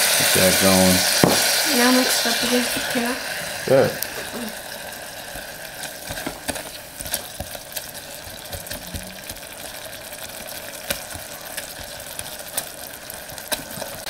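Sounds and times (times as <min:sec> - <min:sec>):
onions sizzling in a pot: 0:00.0 - 0:14.0
spatula scraping and tapping pot: 0:05.3 - 0:09.6, 0:10.6 - 0:12.7.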